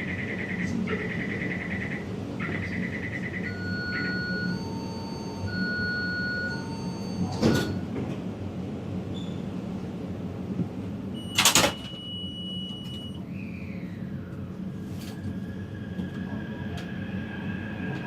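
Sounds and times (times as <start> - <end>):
train low rumble: 0.0 - 18.0
door-closing warning beeps: 2.4 - 7.9, 11.2 - 13.2.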